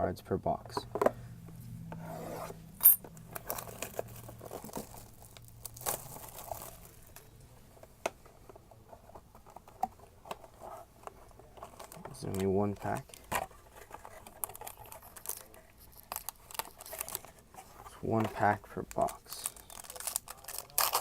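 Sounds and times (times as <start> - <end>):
plastic wrap crinkling and tearing: 3.4 - 7.3, 14.2 - 17.4, 18.9 - 21.0.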